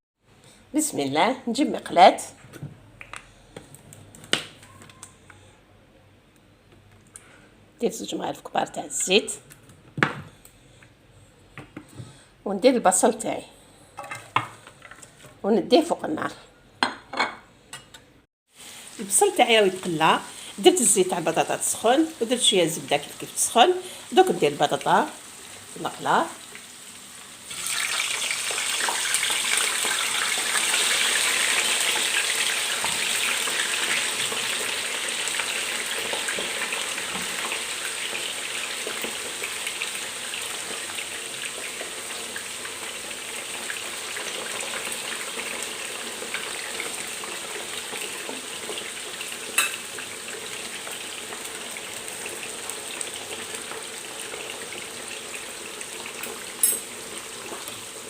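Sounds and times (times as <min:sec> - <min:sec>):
potatoes sizzling in frying pan: 0:18.5 - 0:58.0.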